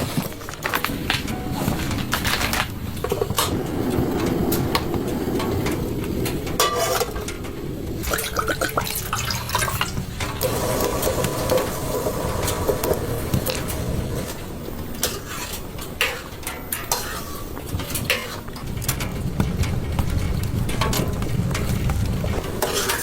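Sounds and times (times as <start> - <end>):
water running: 0.0 - 16.2.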